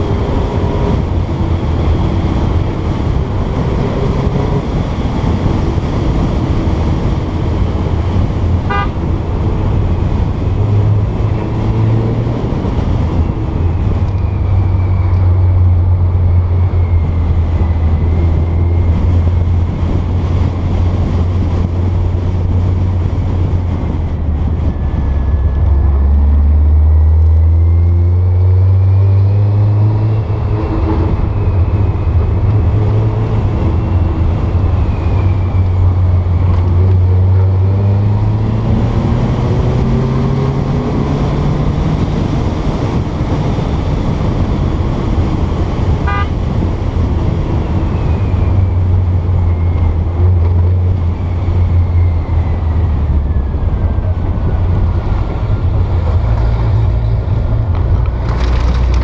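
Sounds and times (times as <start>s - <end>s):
road noise: 0.0s - 59.0s
car engine running: 57.0s - 59.0s.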